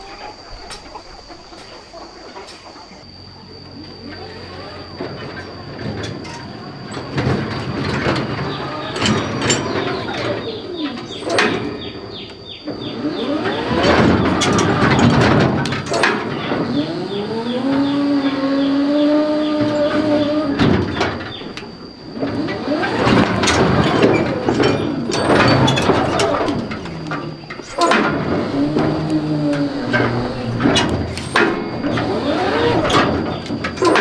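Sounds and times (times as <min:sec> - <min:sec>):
farm animals calling: 0:00.0 - 0:03.1.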